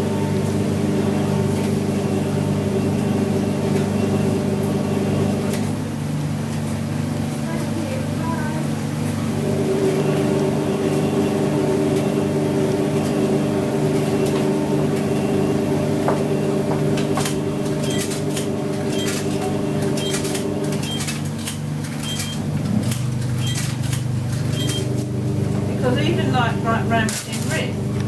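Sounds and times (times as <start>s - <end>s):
washing machine humming: 0.0s - 28.0s.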